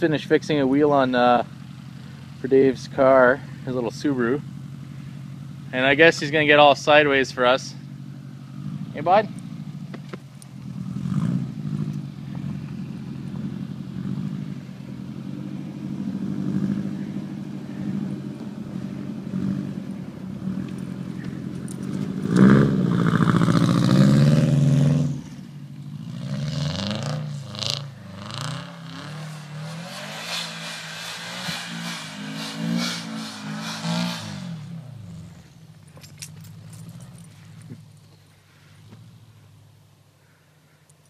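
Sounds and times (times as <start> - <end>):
car engine revving hard: 10.6 - 35.5.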